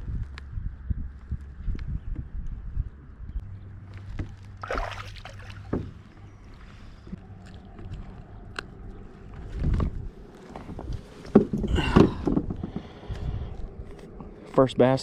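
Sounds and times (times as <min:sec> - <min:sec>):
boat engine hum: 0:03.4 - 0:15.0.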